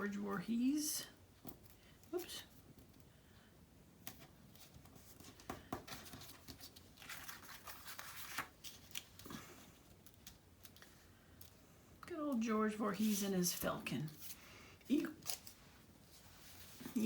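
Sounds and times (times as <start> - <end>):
paper rustling: 4.1 - 11.6, 12.9 - 14.6, 15.2 - 17.0.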